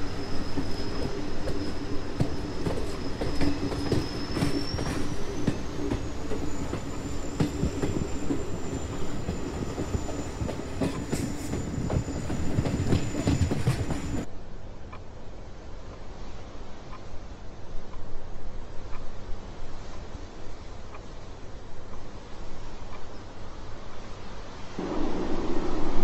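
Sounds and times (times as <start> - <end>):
high wheel squeal: 0.0 - 14.2
train rumbling on rails: 0.0 - 14.3, 15.8 - 26.0.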